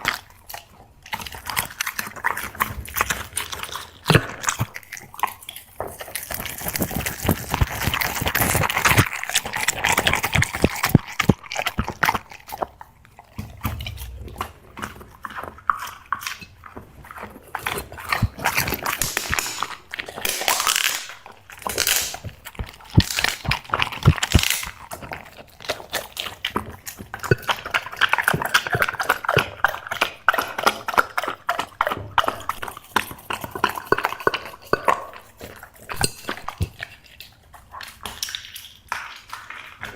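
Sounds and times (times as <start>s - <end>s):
dog crunching dry snacks: 17.1s - 33.8s.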